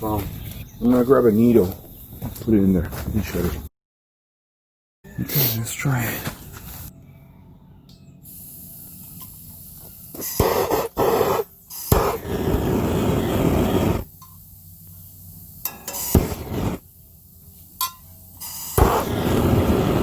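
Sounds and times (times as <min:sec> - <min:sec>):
gas rushing and hissing: 0:08.3 - 0:20.0
burner igniter clicks: 0:17.8 - 0:19.8.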